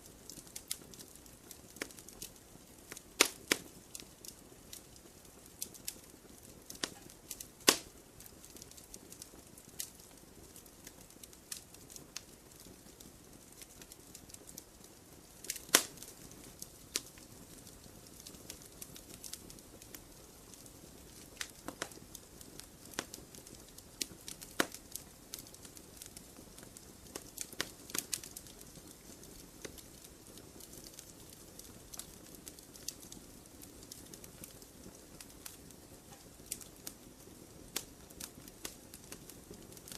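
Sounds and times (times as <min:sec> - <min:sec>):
campfire crackling and popping: 0:00.0 - 0:39.9
fire hissing softly: 0:00.0 - 0:39.9.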